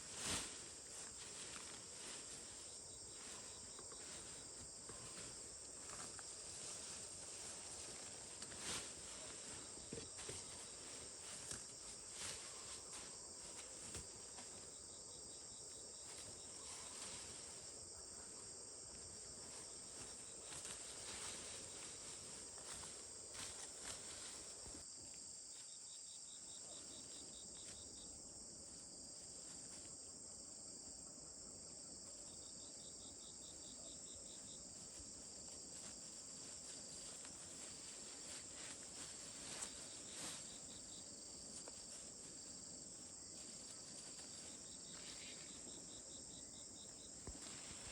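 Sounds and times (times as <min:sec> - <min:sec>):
insects chirping: 0:00.0 - 0:47.9.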